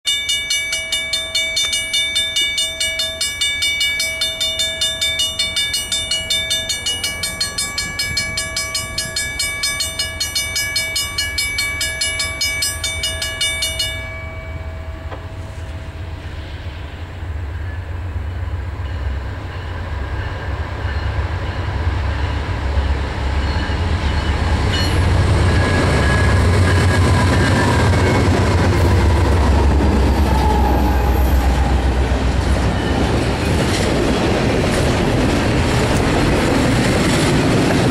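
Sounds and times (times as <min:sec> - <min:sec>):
bell ringing: 0:00.0 - 0:16.0, 0:23.4 - 0:27.2
diesel locomotives rumbling: 0:00.5 - 0:37.9.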